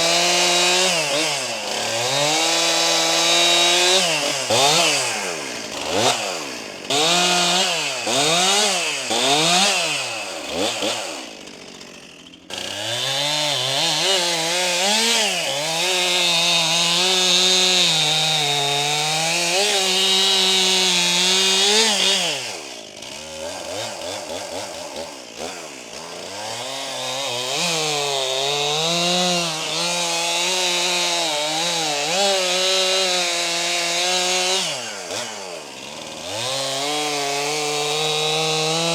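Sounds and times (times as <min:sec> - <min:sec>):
chainsaw revving and cutting wood: 0:00.0 - 0:38.9.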